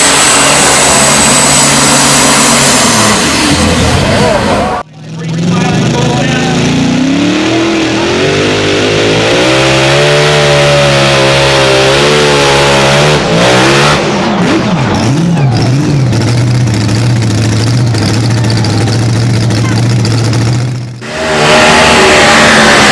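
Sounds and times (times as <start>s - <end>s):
tractor engine revving under load: 0.0s - 22.9s.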